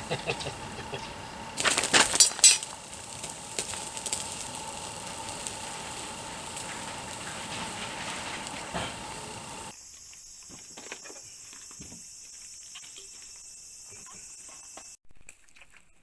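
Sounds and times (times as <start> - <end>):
small fire crackling: 0.0 - 9.8.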